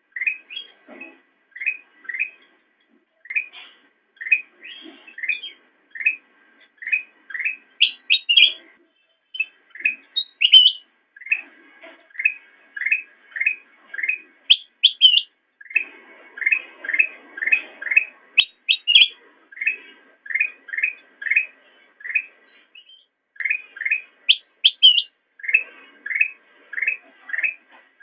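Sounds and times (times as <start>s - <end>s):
bulbul chattering song: 0.0s - 0.8s, 4.2s - 6.2s, 6.8s - 8.6s, 9.3s - 11.5s, 12.1s - 27.6s
sharp high bird notes: 14.5s - 15.8s.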